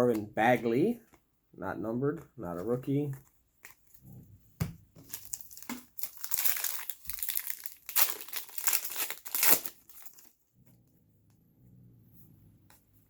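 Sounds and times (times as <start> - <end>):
foil wrapper crinkling: 5.0 - 10.4.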